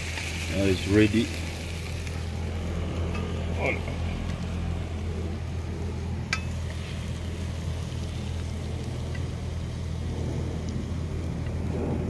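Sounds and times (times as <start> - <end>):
food sizzling in a wok: 0.0 - 11.5
low rumble: 0.3 - 12.0
sharp clink: 6.3 - 6.6.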